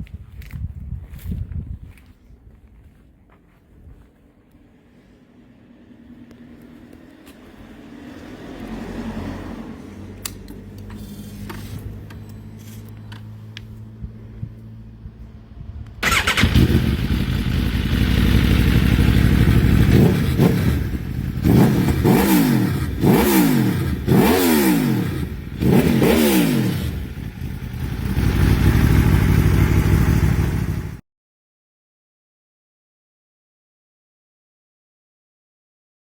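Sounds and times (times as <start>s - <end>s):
motorcycle engine idling: 16.0s - 22.1s, 26.9s - 31.0s
motorcycle engine revving: 16.0s - 31.0s.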